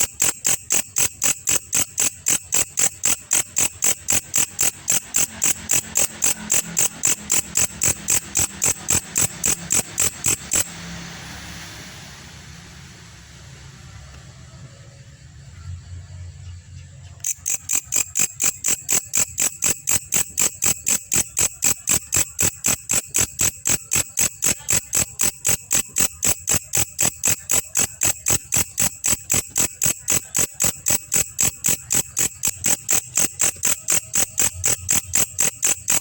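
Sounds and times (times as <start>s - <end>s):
insect high-pitched chirping: 0.0s - 11.1s, 15.6s - 36.0s.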